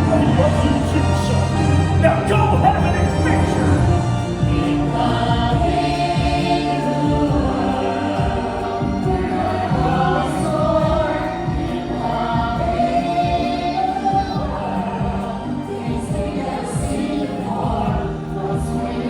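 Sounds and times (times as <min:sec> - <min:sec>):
choir singing held notes: 0:00.0 - 0:19.0
orchestral backing: 0:00.0 - 0:19.0.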